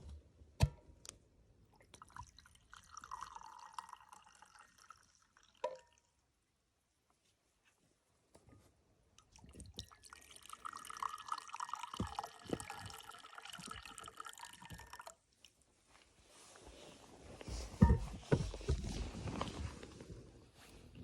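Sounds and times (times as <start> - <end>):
water trickling and dripping: 1.8 - 6.2, 9.2 - 15.6.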